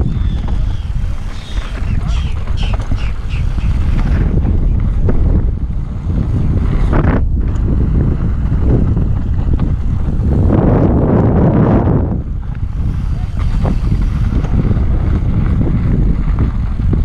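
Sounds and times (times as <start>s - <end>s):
bike knocks and rattles: 0.0s - 10.7s
wind buffeting microphone: 0.0s - 17.0s.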